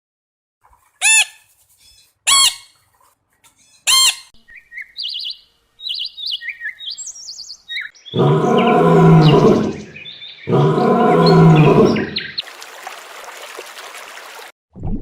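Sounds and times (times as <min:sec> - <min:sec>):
bird chirping and trilling: 0:01.0 - 0:02.8, 0:03.5 - 0:12.4
loud rising and falling bird calls: 0:03.6 - 0:12.5.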